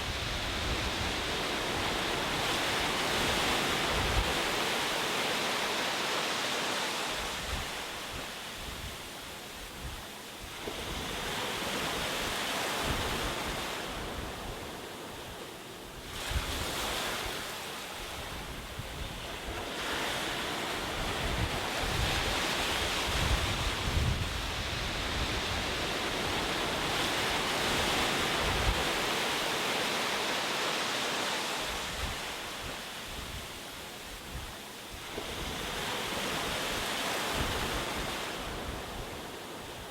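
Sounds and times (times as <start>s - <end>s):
wind buffeting microphone: 18.3s - 29.3s.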